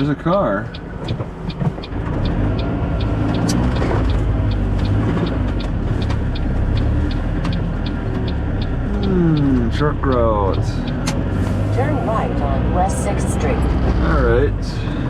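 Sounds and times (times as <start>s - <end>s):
road and engine noise in car: 0.0s - 15.0s
turn signal ticking: 0.0s - 15.0s
sharp click: 0.7s - 11.6s.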